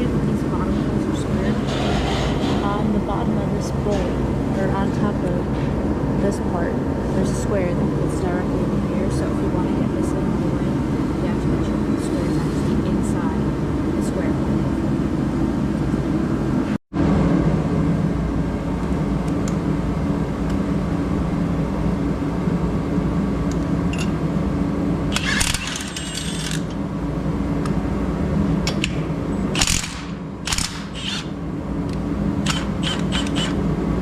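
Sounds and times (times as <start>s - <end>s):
motor running: 25.1s - 26.9s, 29.4s - 33.8s.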